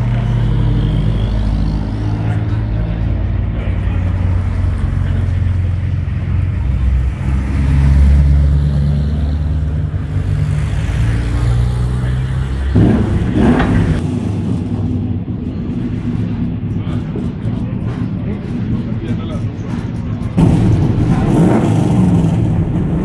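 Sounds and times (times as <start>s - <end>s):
engine revving: 0.0s - 14.8s, 20.3s - 23.0s
racing car engines at low speed: 0.0s - 23.0s.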